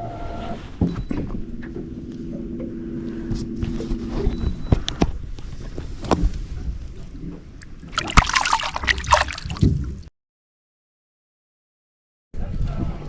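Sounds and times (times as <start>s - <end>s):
knocks and clatter on boat: 0.8s - 8.1s
water splash: 7.6s - 10.1s.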